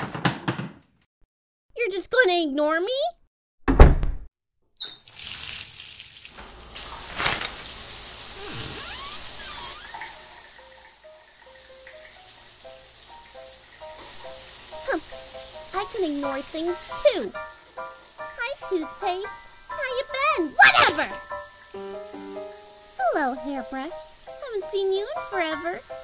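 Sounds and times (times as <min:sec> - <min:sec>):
heavy thump: 0:03.7 - 0:04.3
light plucked music: 0:20.9 - 0:26.0
steady hiss: 0:21.2 - 0:26.0.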